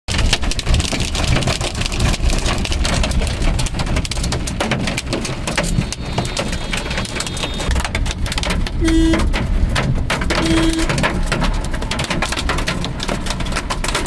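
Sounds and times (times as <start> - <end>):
hailstones hitting a car: 0.1 - 14.0.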